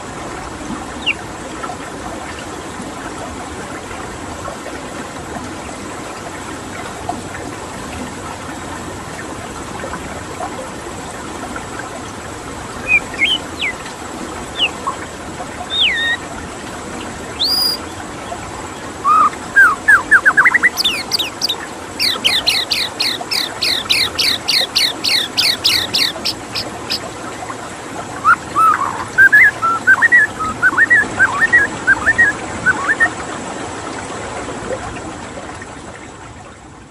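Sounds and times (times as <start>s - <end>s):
flowing water: 0.0s - 36.9s
bird singing: 1.0s - 1.2s, 12.8s - 13.8s, 14.6s - 14.8s, 15.7s - 16.2s, 17.4s - 17.8s, 19.0s - 27.0s, 28.2s - 33.1s.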